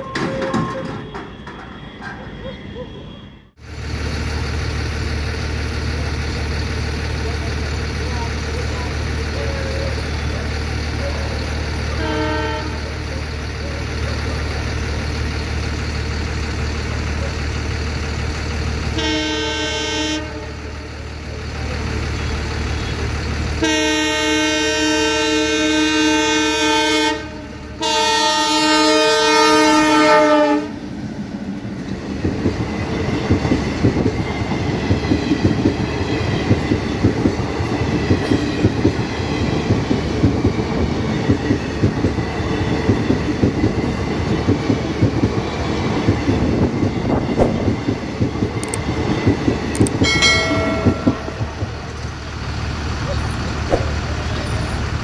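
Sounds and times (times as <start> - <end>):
locomotive horn blasts: 11.9 - 13.0, 19.0 - 20.9, 23.6 - 30.8
train wheels clacking over rails: 31.7 - 55.0.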